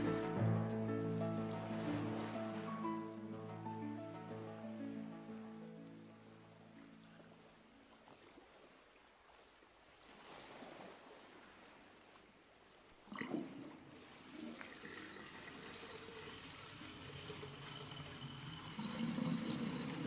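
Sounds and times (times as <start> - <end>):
faint trickling water: 12.1 - 20.0.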